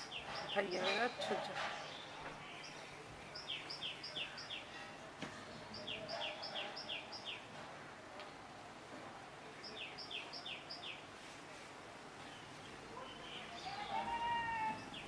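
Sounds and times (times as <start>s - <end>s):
bird chirping: 0.0s - 4.9s, 5.5s - 7.5s, 9.6s - 11.0s, 12.2s - 15.0s
faint background noise: 0.0s - 15.0s.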